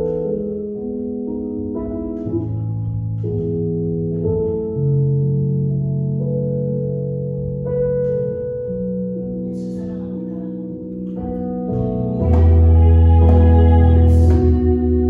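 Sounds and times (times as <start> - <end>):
keyboard playing slow chords: 0.0 - 15.0
deep bass note: 9.8 - 15.0.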